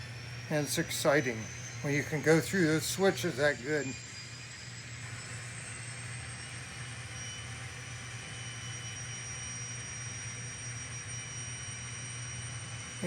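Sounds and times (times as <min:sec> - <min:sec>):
model locomotive engine drone: 0:00.0 - 0:13.0
thin high whine: 0:00.0 - 0:13.0.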